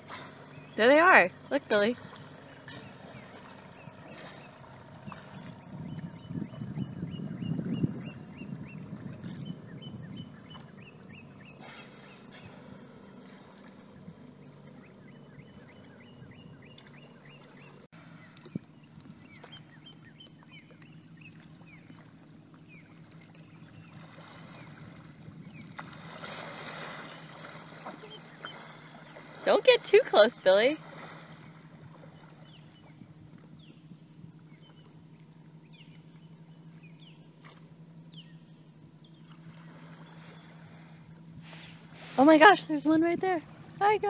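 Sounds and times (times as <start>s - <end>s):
low rumble: 0.0s - 29.5s
bird chirping: 2.4s - 12.6s, 14.4s - 24.0s, 32.1s - 37.4s, 38.1s - 39.4s.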